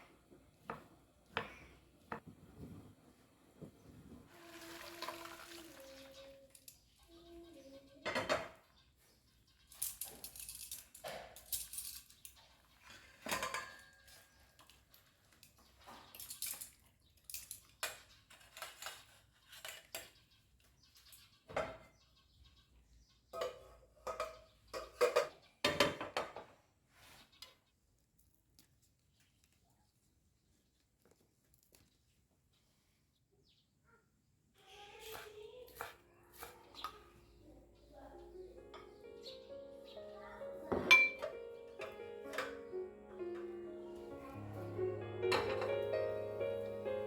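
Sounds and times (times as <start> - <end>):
dishes and utensils clinking: 9.8 - 14.4, 23.4 - 26.4, 38.3 - 39.6, 40.7 - 42.7, 44.1 - 47.0.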